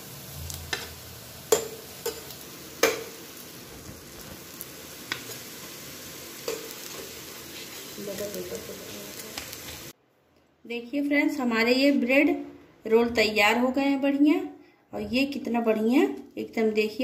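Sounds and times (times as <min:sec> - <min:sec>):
bread sizzling in hot oil: 0:00.0 - 0:10.0
metal spoon clinking: 0:06.4 - 0:06.7.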